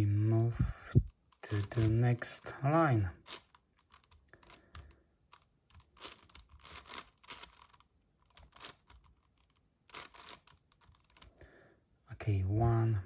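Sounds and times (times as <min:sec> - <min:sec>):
puzzle cube plastic clicks: 0:01.1 - 0:02.5, 0:03.2 - 0:11.4.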